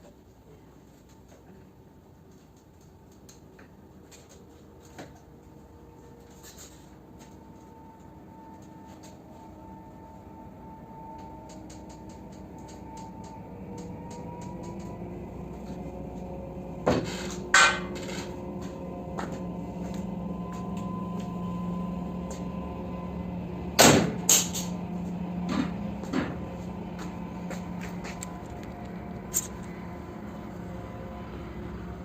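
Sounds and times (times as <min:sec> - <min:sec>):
steady hum: 0:04.6 - 0:32.0.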